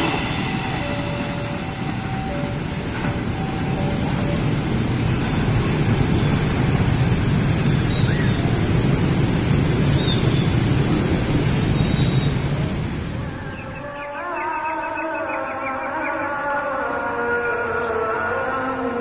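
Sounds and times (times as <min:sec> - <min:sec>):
train rumbling: 0:00.0 - 0:14.2.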